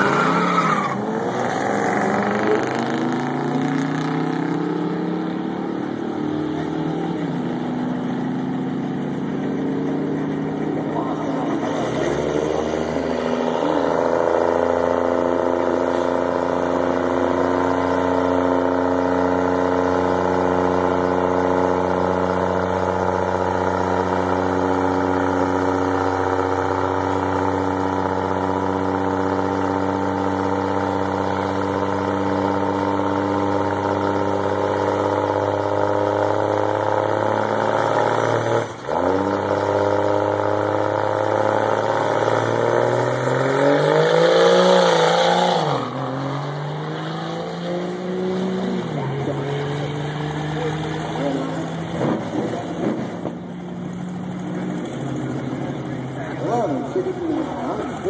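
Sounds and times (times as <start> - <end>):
vehicle engine idling: 4.9 - 38.1, 48.6 - 58.0.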